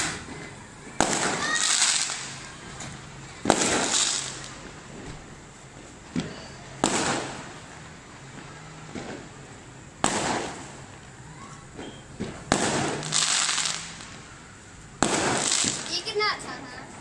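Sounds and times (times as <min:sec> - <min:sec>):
faint firework pops: 0:00.0 - 0:05.3, 0:06.1 - 0:07.6, 0:08.4 - 0:09.3, 0:10.0 - 0:10.8, 0:11.7 - 0:14.2, 0:15.0 - 0:16.1
firework bangs: 0:00.0 - 0:17.0
high hiss: 0:00.0 - 0:17.0.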